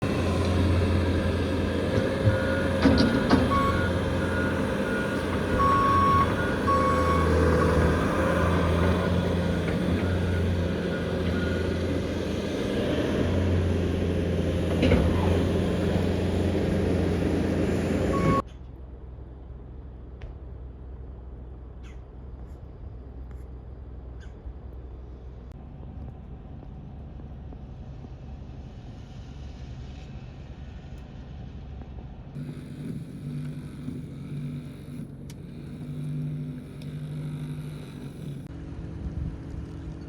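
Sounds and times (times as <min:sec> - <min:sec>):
heavy vehicle engine humming: 0:00.0 - 0:40.0
short beeps: 0:18.2 - 0:18.4.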